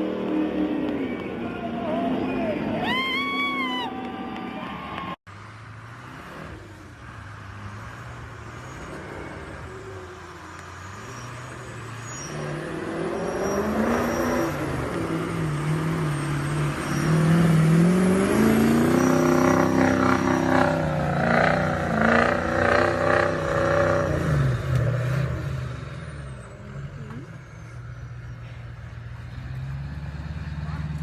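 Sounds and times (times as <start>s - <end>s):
truck engine revving: 5.4s - 31.0s.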